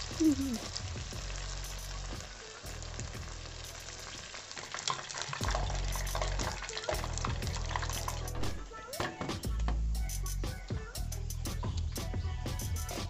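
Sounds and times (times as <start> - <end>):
fritters deep-frying in oil: 0.0 - 8.6
wire skimmer stirring in oil: 4.9 - 8.4.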